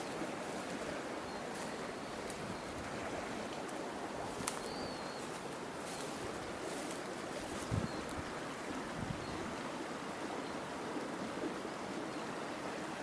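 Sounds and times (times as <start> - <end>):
faint bird chirp: 0.0 - 2.8, 3.8 - 9.6
fast-flowing river: 0.0 - 13.0.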